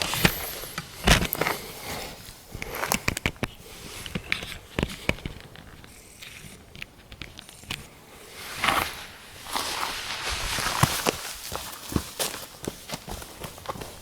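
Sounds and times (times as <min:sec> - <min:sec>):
rustle: 0:08.3 - 0:13.8
footsteps on rough ground: 0:08.6 - 0:14.0.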